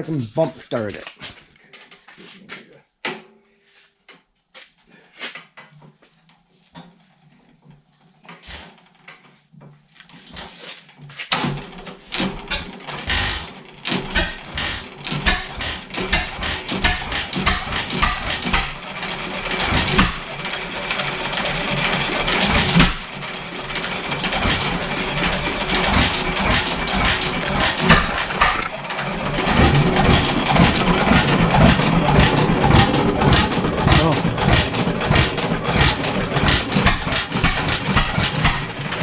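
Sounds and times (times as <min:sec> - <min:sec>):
engine turning over clicks: 0:11.3 - 0:39.0
engine running steadily: 0:11.4 - 0:39.0.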